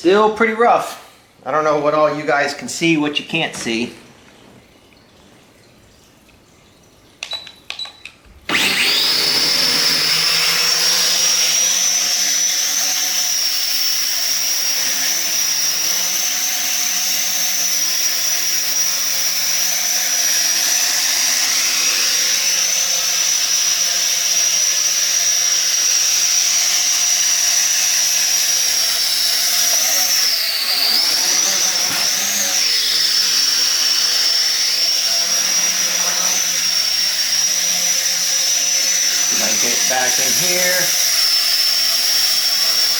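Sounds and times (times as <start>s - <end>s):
drone rotors whining: 8.5s - 42.9s.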